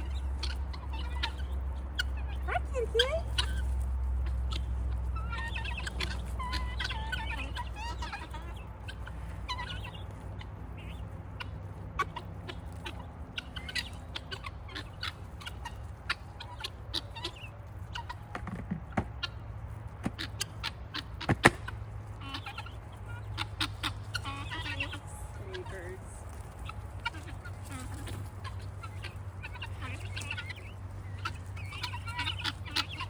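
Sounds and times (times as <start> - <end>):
guinea fowl chattering calls: 0.0 - 33.0
sharp clicks and knocks: 18.3 - 19.2, 21.2 - 21.8.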